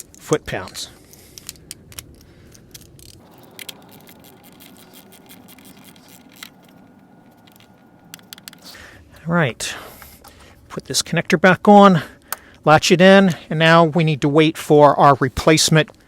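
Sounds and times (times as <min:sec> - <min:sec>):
metallic tool clicks and scrapes: 0:00.0 - 0:08.8.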